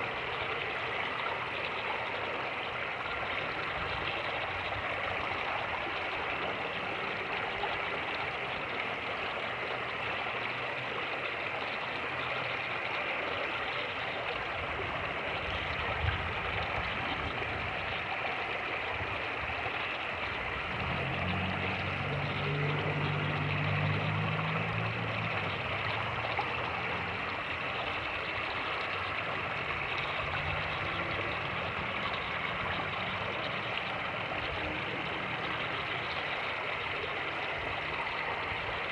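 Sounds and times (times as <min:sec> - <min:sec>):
creek water rushing: 0:00.0 - 0:38.9
low engine drone: 0:20.5 - 0:37.9.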